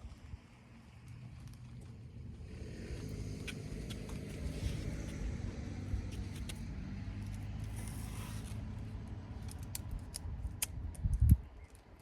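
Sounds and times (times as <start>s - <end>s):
vehicle engine humming: 0.2s - 10.5s
brief scrape: 7.7s - 8.6s.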